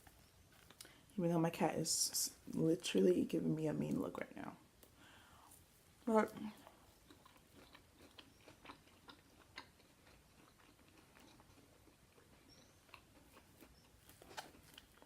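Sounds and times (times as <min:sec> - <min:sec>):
person chewing: 0:00.0 - 0:01.0, 0:06.5 - 0:15.0.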